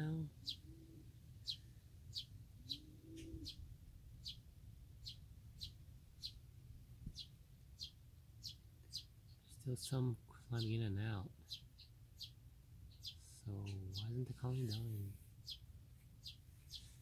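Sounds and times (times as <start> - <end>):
small bird chirping: 0.0 - 17.0
low soft bird call: 0.4 - 3.6.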